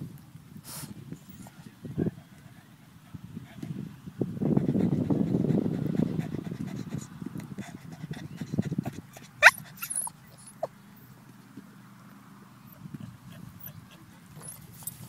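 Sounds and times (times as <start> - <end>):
dog whining and yelping: 9.1 - 10.7, 12.7 - 15.0
dog squeak: 9.4 - 10.7.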